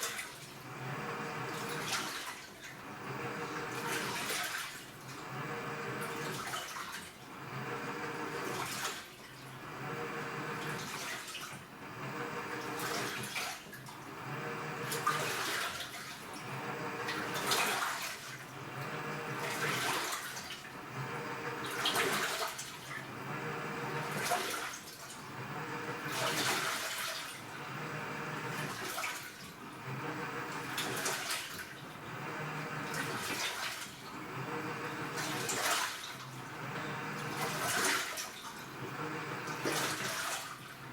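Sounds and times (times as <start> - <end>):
water surging in washing machine: 0.0 - 40.9
low motor hum: 0.7 - 1.8, 2.9 - 4.0, 5.2 - 6.2, 7.4 - 8.4, 9.6 - 10.7, 11.8 - 12.8, 14.1 - 15.1, 16.4 - 17.5, 18.6 - 19.6, 20.8 - 21.7, 23.1 - 24.2, 25.3 - 26.2, 27.5 - 28.7, 29.8 - 30.8, 32.0 - 33.1, 34.2 - 35.5, 36.4 - 37.6, 38.8 - 39.8.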